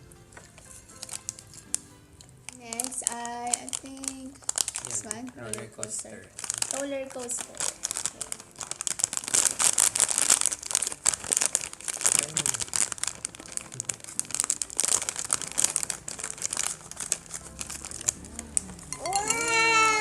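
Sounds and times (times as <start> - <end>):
snack bag crinkling: 0.1 - 20.0
high drawn-out cry: 19.0 - 20.0.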